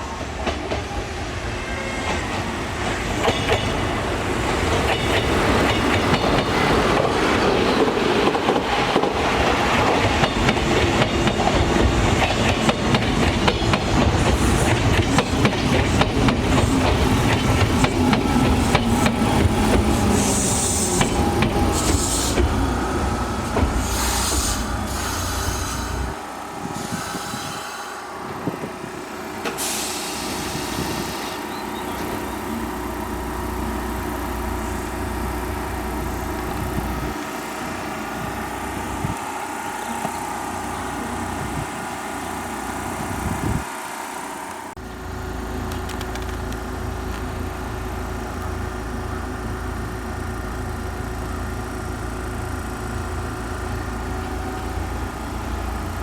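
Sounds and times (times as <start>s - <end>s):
electric train hum and rumble: 0.0s - 56.0s
air hissing: 18.6s - 26.2s, 29.5s - 31.4s.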